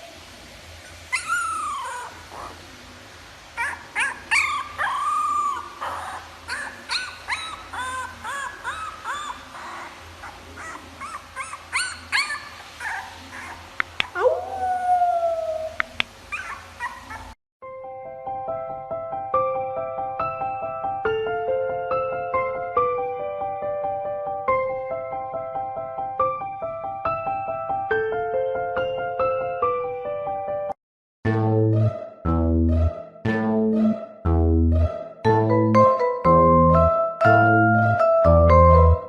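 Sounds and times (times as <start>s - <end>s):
dog yipping: 0.8s - 2.6s, 3.6s - 14.6s, 15.5s - 17.4s
dog howling: 1.1s - 2.6s, 3.6s - 17.4s.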